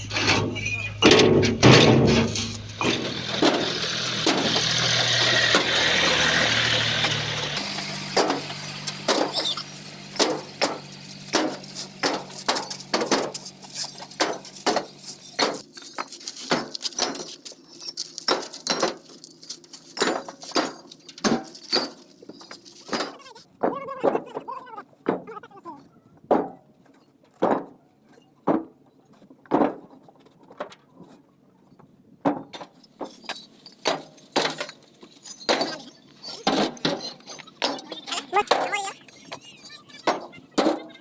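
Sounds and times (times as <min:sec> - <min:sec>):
tractor engine idling: 0:00.0 - 0:23.6
bricks clacking together: 0:00.1 - 0:09.6, 0:10.2 - 0:25.3, 0:32.3 - 0:41.0.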